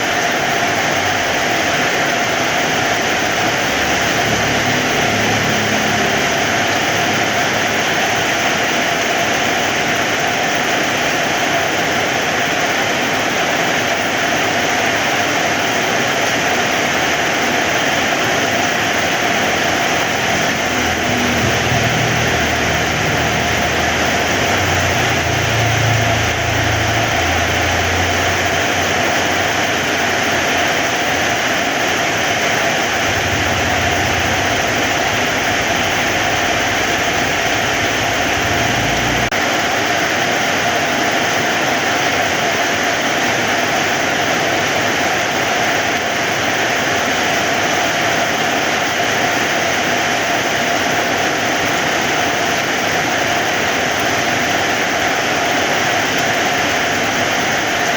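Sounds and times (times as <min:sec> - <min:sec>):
heavy rain: 0:00.0 - 0:57.9
low rumble: 0:19.4 - 0:30.3, 0:32.6 - 0:39.4.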